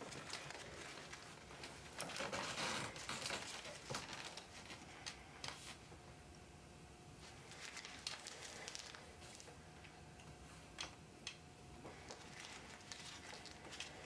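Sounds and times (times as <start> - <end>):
packet clicking and rustling: 0.0 - 5.6, 7.5 - 9.5, 10.8 - 14.0.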